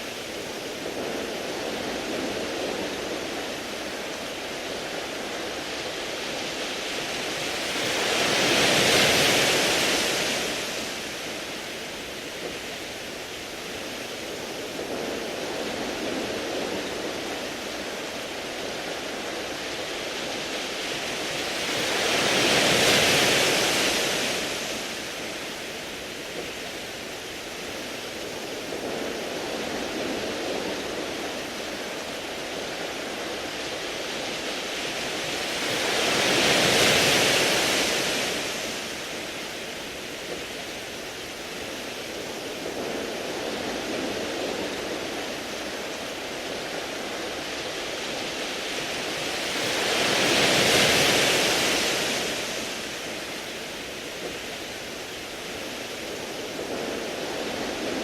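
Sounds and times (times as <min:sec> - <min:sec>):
steady hiss of surf: 0:00.0 - 0:58.0.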